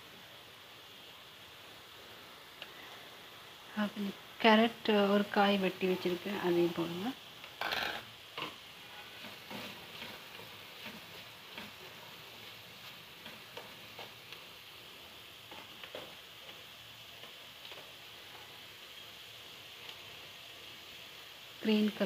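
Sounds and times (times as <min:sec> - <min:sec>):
food sizzling in a pan: 0:00.0 - 0:22.0
spatula scraping and tapping pan: 0:07.5 - 0:14.6, 0:15.4 - 0:16.6.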